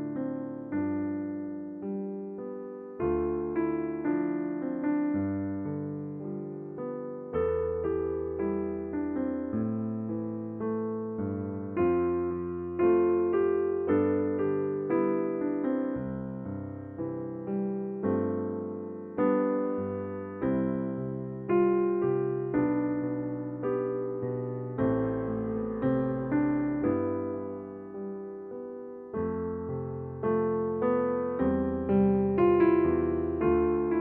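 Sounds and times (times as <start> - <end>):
gentle electric piano chords: 0.0 - 34.0.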